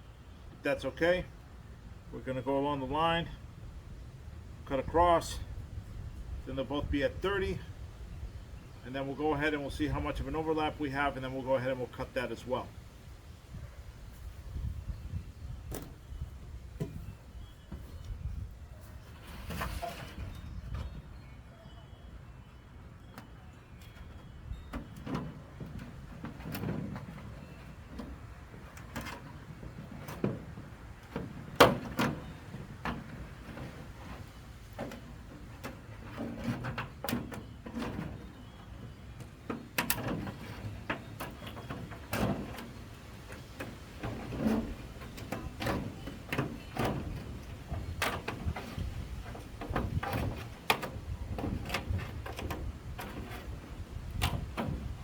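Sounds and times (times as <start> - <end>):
roof panels knocking and scraping: 18.8 - 21.0, 23.8 - 55.0.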